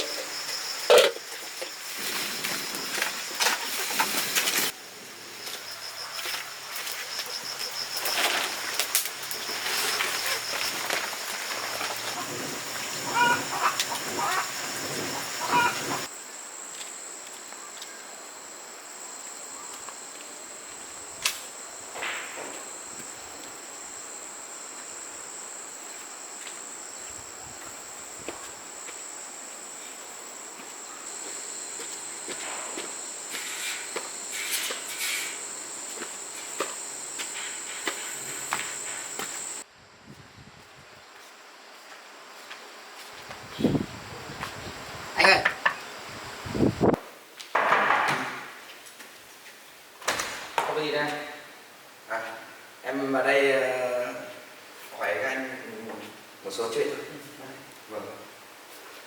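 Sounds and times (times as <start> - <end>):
high-pitched insect drone: 0.0 - 39.7
short bird calls: 13.0 - 16.1.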